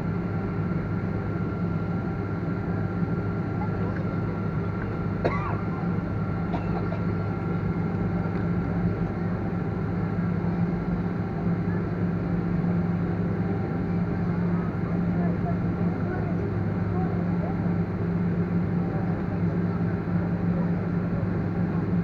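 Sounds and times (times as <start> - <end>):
airliner drone with whine: 0.0 - 22.0.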